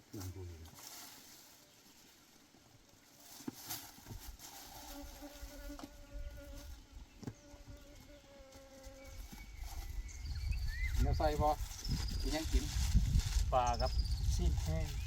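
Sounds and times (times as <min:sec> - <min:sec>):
flying insect buzzing: 0:04.7 - 0:09.3.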